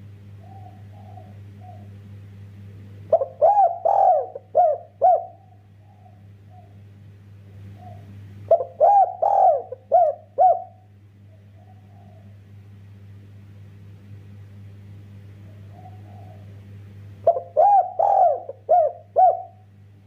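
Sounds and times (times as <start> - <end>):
steady low hum: 0.0 - 20.0
dove cooing: 0.3 - 2.0, 3.1 - 6.8, 7.6 - 12.6, 15.4 - 19.7.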